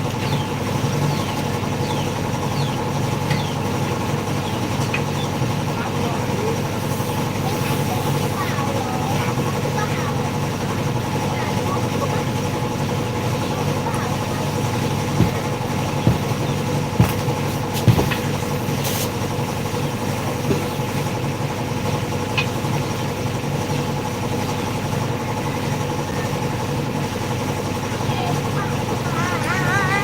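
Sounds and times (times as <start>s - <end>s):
machine hum idling: 0.0s - 30.0s
sharp knocks: 14.8s - 18.3s.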